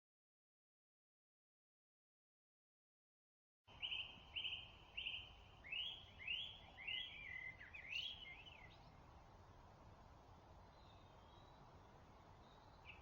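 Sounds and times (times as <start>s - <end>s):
song thrush singing: 3.7s - 9.6s, 10.3s - 13.0s
faint background hiss: 3.7s - 13.0s.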